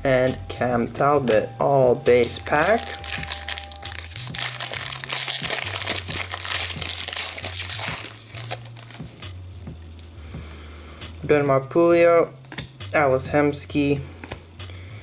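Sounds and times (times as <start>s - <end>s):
card pack wrapper crinkling: 2.2s - 10.0s.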